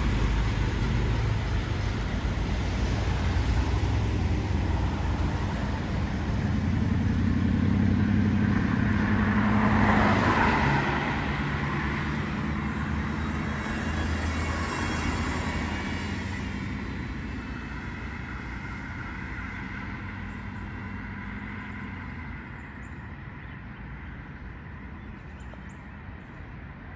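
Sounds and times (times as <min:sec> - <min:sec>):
truck diesel engine pulling hard: 0:00.0 - 0:22.4.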